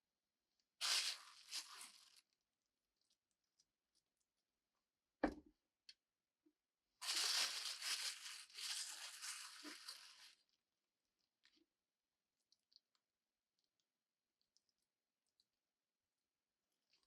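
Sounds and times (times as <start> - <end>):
rustling tearing noise: 0.8 - 2.2, 7.0 - 10.4
dull knock: 5.2 - 5.4.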